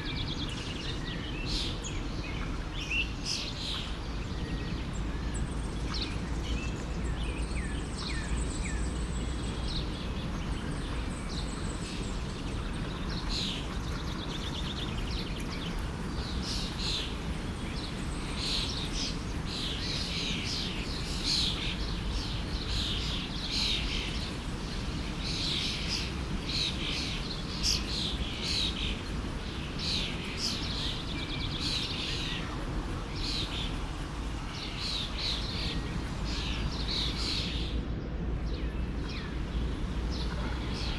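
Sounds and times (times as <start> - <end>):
songbirds chirping: 0.0 - 40.9
forest stream rushing: 7.0 - 40.9.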